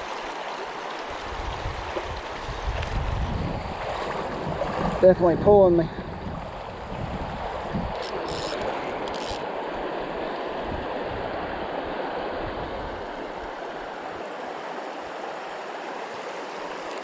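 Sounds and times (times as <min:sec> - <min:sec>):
river water rushing: 0:00.0 - 0:05.8, 0:06.5 - 0:17.0
short high hissing bursts: 0:08.0 - 0:09.4.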